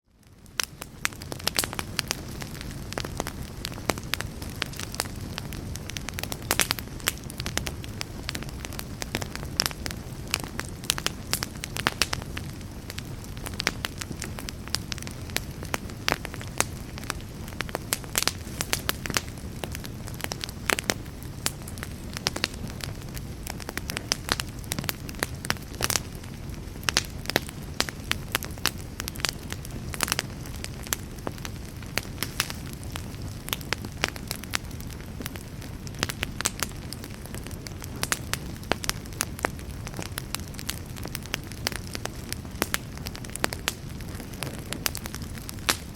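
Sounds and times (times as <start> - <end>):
campfire crackling and popping: 0.1 - 45.9.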